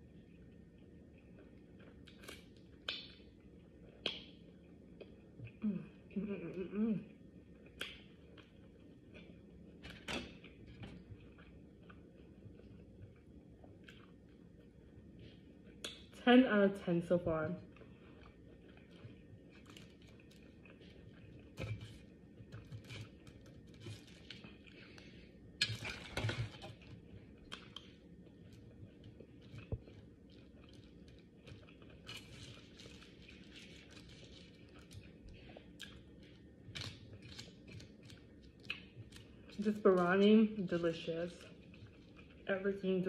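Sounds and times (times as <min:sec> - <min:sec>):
person chewing: 0:07.4 - 0:16.2, 0:17.6 - 0:39.6, 0:41.4 - 0:42.5.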